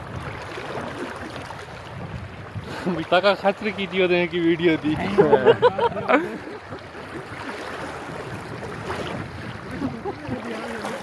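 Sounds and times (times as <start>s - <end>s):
river water rushing: 2.6s - 11.0s.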